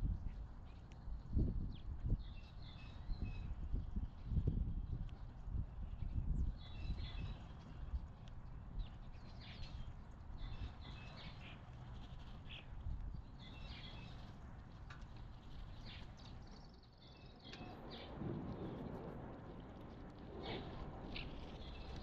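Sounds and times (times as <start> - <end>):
small birds chirping: 0.2 - 8.1, 8.7 - 18.2.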